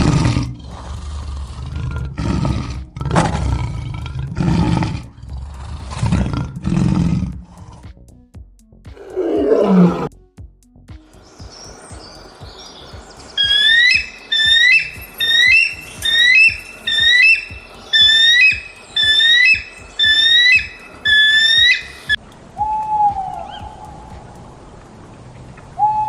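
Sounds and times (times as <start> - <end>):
bird giving loud short calls: 13.4 - 22.2
steady whistle-like note: 13.4 - 24.4.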